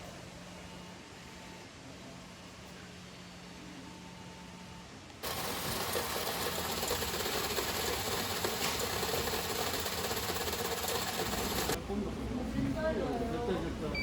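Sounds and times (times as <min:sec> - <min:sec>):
mechanical rattling and clattering: 0:05.2 - 0:11.8.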